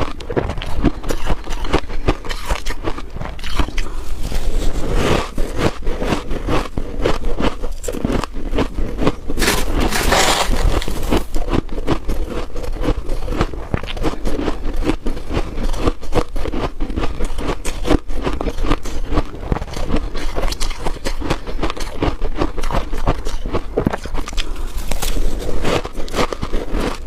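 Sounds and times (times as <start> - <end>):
frost being chewed: 0.0 - 27.0.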